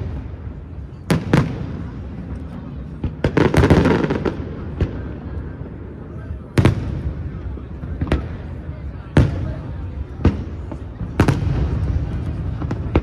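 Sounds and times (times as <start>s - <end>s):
fireworks bangs: 0.0s - 13.0s
fireworks crackling pops: 9.1s - 13.0s.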